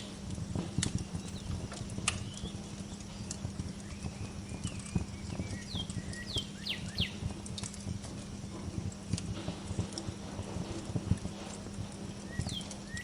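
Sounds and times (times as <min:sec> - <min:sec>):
wood fire crackling: 0:00.0 - 0:13.0
small birds chirping: 0:00.8 - 0:07.3, 0:12.1 - 0:13.0.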